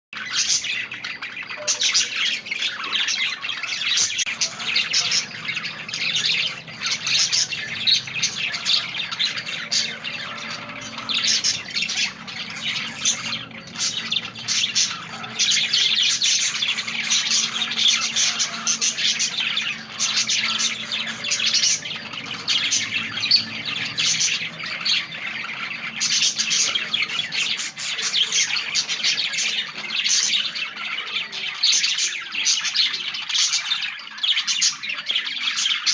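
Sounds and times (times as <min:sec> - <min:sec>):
budgerigars chattering and chirping: 0:00.2 - 0:35.9.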